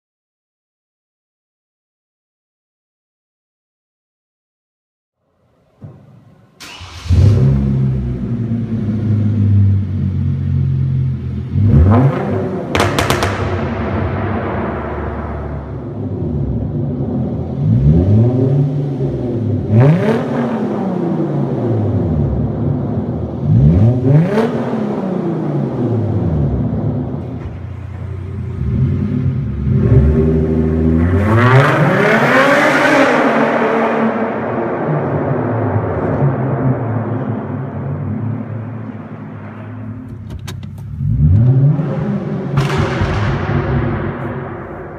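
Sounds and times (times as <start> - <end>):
engine starter cranking: 6.6 - 7.5
engine revving: 6.6 - 10.4, 11.4 - 38.9, 40.8 - 44.9.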